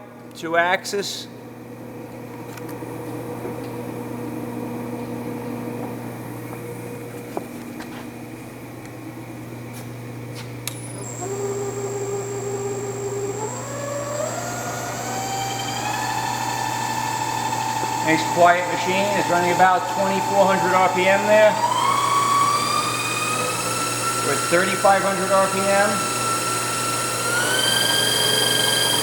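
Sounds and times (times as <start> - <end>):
milling machine whine: 10.7 - 29.0
steady hum: 17.2 - 29.0.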